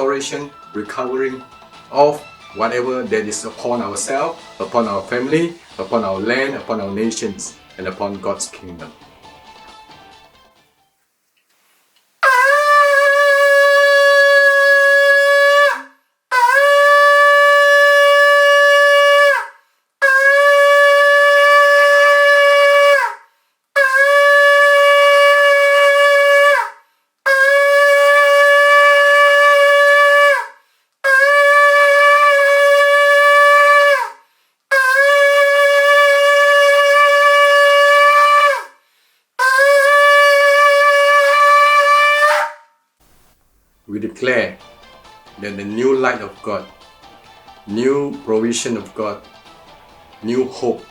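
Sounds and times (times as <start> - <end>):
shofar blasts: 12.2 - 23.2, 23.8 - 26.7, 27.3 - 38.7, 39.4 - 42.7.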